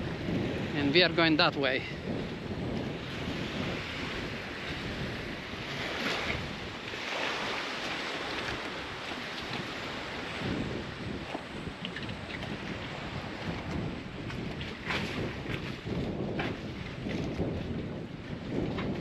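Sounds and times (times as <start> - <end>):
water and waves rushing: 0.0 - 19.0
wind buffeting microphone: 0.0 - 19.0.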